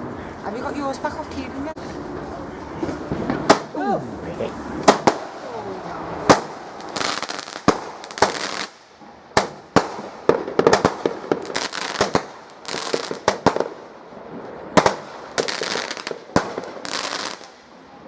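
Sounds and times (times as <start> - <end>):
fireworks crackling: 0.4 - 18.0
fireworks bangs: 2.8 - 3.8, 4.6 - 17.8.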